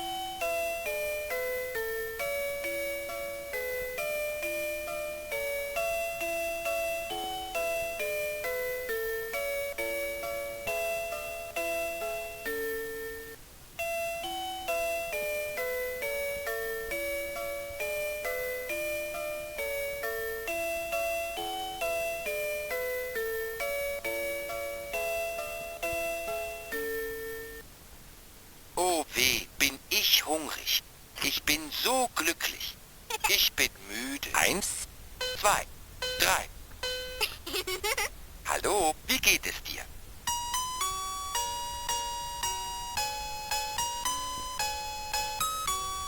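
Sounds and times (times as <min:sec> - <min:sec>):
toy playing chime-like melody: 0:00.0 - 0:27.6, 0:35.2 - 0:37.4, 0:40.3 - 0:46.0.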